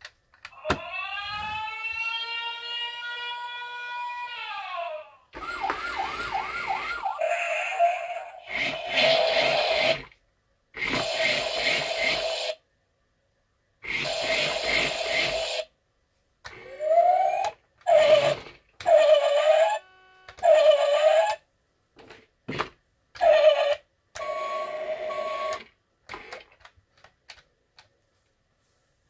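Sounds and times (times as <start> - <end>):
toy electronic siren: 0.6 - 4.3, 5.4 - 10.0, 13.9 - 15.7, 16.6 - 21.4, 23.2 - 25.7.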